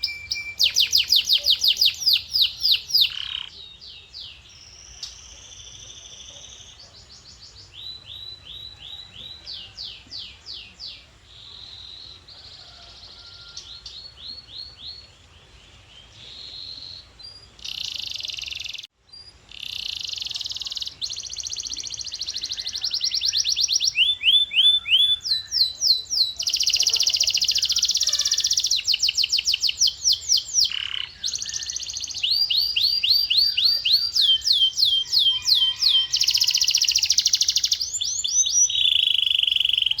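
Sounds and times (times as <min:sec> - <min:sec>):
canary singing trilled phrases: 0:00.0 - 0:11.0, 0:16.6 - 0:40.0.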